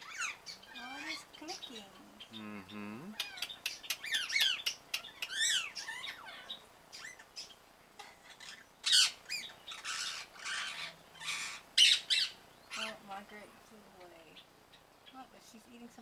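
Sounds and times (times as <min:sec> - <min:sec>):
parrot squawks: 0:00.0 - 0:01.3, 0:02.6 - 0:07.5, 0:08.2 - 0:12.9
parrots clicking and chirping: 0:03.1 - 0:07.4.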